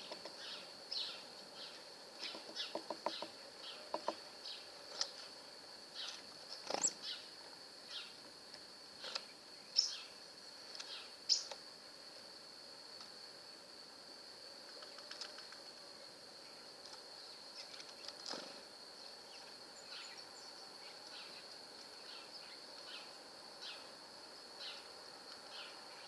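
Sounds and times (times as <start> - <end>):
birds chirping: 0.0 - 5.1, 9.0 - 10.2, 10.8 - 11.6, 19.0 - 23.9
steady high-pitched whine: 0.0 - 26.0.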